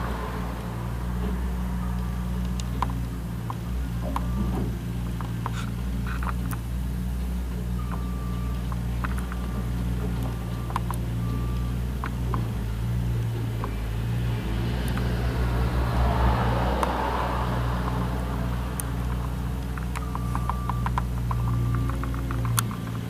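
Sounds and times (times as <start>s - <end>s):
diesel engine running: 0.0s - 23.0s
short beeps: 3.0s - 4.7s, 7.7s - 12.0s, 20.0s - 22.1s.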